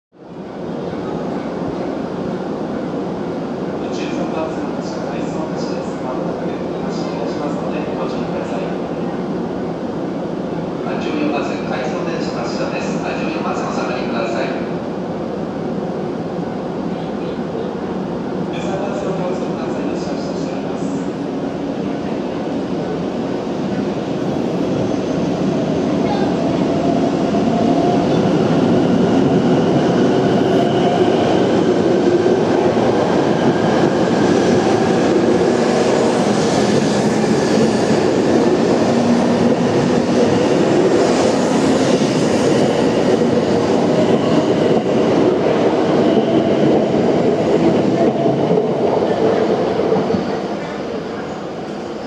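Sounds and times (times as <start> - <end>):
train rolling past: 0.4 - 52.0.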